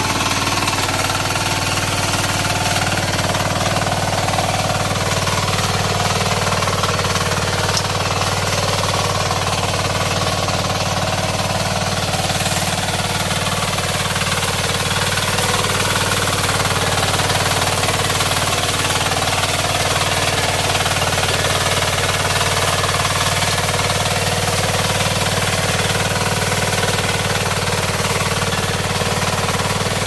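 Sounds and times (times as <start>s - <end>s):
diesel engine knocking: 0.0s - 30.0s.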